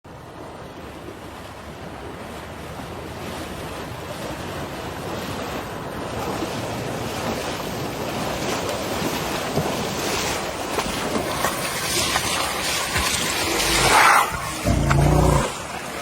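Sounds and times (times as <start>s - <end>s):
floodwater rushing: 8.1s - 16.0s.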